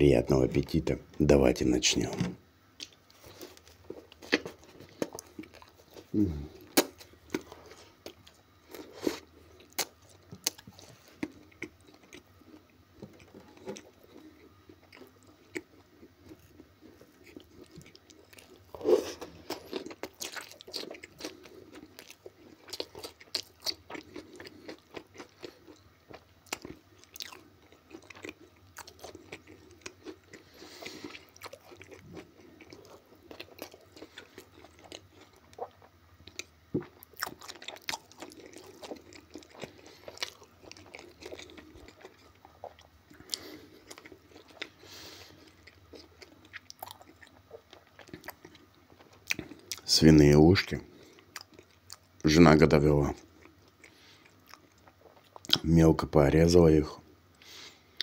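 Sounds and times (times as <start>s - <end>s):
crunchy bites: 2.8s - 12.2s
man biting and chewing food: 2.8s - 49.9s, 50.9s - 52.2s, 53.2s - 55.6s.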